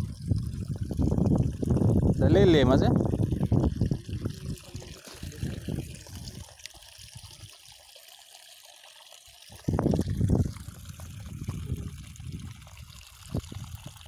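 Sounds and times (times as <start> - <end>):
water trickling and sloshing: 0.0 - 14.0.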